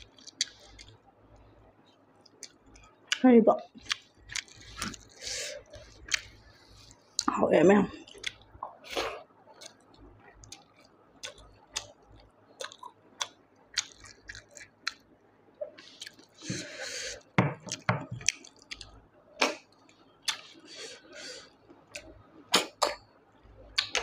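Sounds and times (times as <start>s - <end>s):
wet chewing and mouth clicks: 0.0s - 7.3s, 8.0s - 8.8s, 9.5s - 16.5s, 17.1s - 20.7s, 21.4s - 23.0s, 23.6s - 24.0s.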